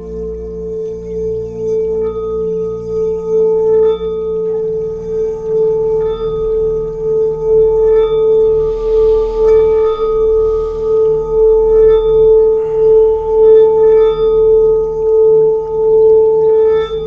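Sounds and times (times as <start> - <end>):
singing bowl tone: 0.0 - 17.0
soft hiss: 4.0 - 15.8.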